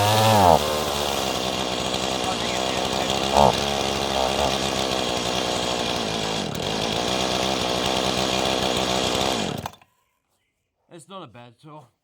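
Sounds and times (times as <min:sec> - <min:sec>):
chainsaw engine running: 0:00.0 - 0:09.8.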